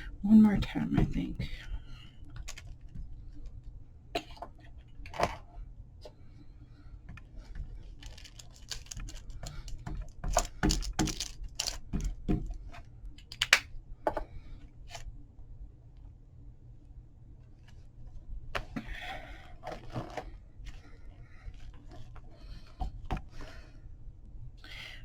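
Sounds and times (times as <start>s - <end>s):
craft tools tapping on paper: 8.7s - 12.5s.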